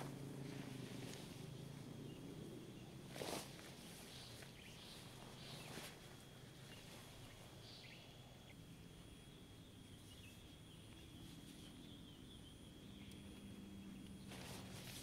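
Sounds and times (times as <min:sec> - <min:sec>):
soft bird chirps: 0:03.8 - 0:06.0, 0:06.6 - 0:15.0.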